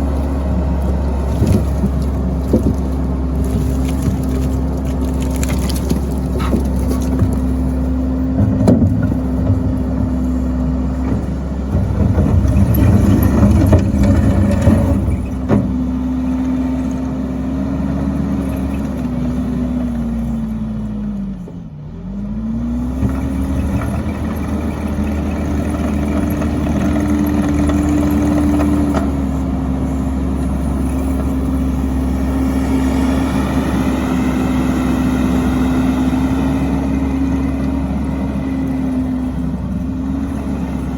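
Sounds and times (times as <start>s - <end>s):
wood splitter engine running: 0.0s - 40.9s
rough clattering noise: 0.8s - 15.9s.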